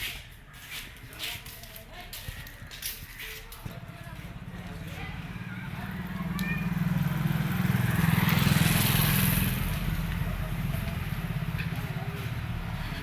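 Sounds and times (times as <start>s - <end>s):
motorcycle engine revving and idling: 3.6s - 13.0s.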